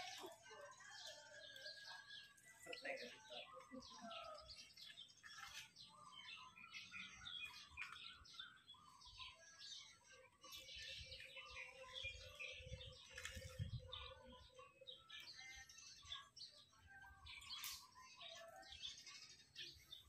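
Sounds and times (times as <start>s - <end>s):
small birds chirping and twittering: 0.0s - 20.0s.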